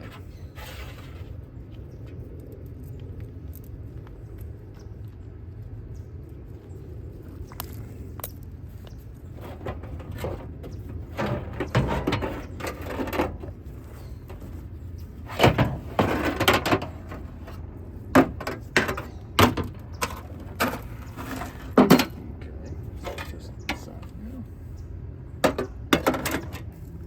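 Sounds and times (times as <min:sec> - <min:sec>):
steady low hum: 0:00.0 - 0:27.0
metal parts clanking and scraping: 0:09.3 - 0:22.3, 0:25.4 - 0:26.8.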